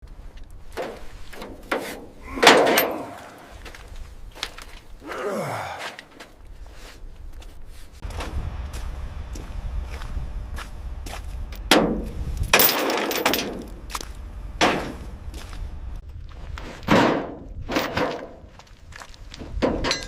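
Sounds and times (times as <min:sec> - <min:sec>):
knocks and thuds: 0:16.8 - 0:18.4.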